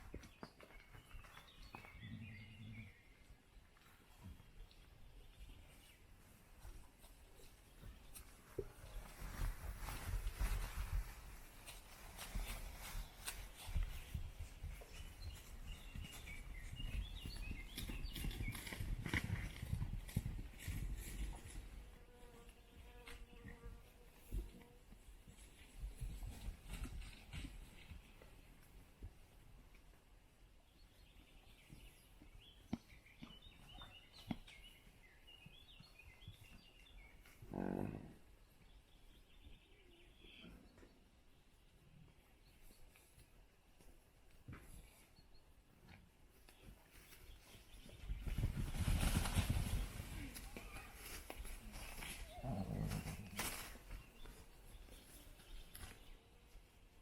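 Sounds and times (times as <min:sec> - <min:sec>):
horse hooves clicking: 0:11.3 - 0:21.9.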